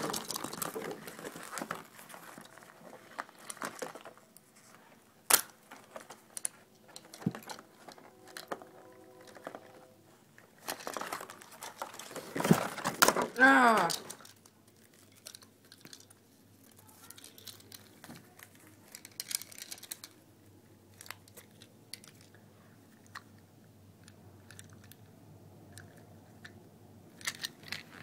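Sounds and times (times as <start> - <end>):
plastic pieces clicking: 0.0 - 4.2, 5.3 - 9.8, 10.6 - 20.2, 20.9 - 22.4, 24.0 - 25.1, 25.7 - 28.0
packaging crinkling: 0.0 - 20.2.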